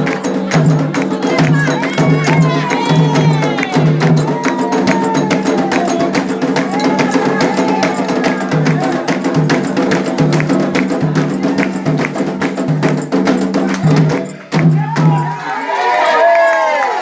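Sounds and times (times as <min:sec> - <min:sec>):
voices chanting: 0:00.0 - 0:10.1
hand drums playing fast rhythm: 0:00.0 - 0:15.6.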